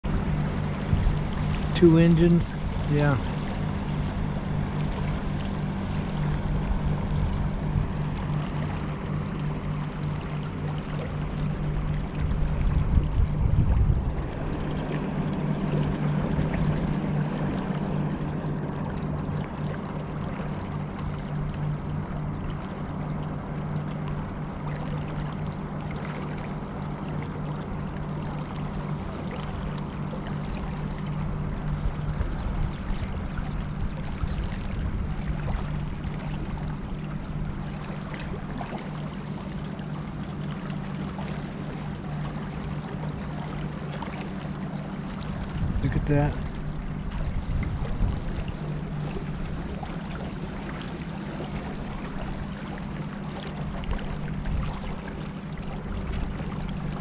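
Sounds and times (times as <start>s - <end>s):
motorboat engine humming: 0.0s - 57.0s
water rushing along hull: 0.0s - 57.0s
loud low rumble: 12.2s - 18.3s.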